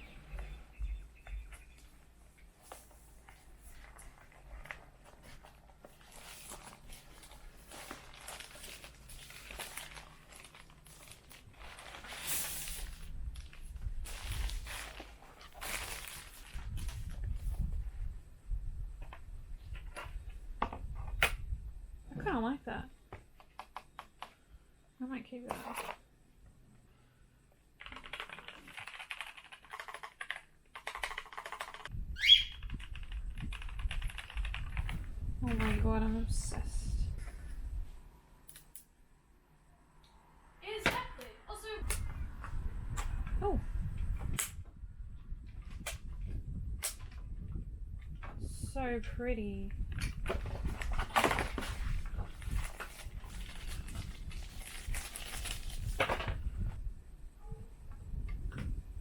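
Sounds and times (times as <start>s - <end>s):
packaging crinkling and rustling: 1.7s - 17.7s, 49.9s - 56.4s.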